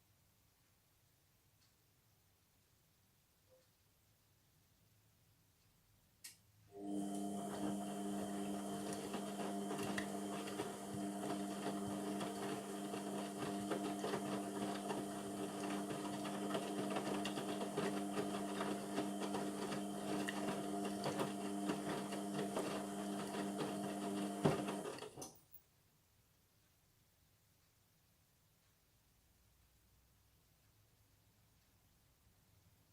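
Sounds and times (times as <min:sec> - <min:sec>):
washing machine motor running: 0:06.7 - 0:25.2.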